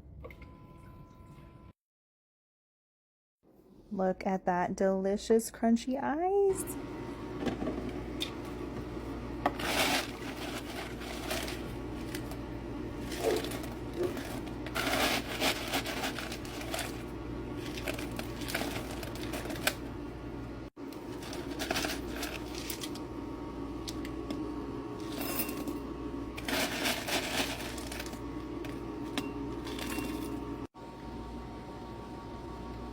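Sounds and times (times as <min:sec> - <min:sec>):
ice maker humming: 0:06.3 - 0:32.9
ice clattering: 0:09.5 - 0:12.4, 0:13.0 - 0:19.8, 0:20.9 - 0:23.0, 0:26.4 - 0:30.4.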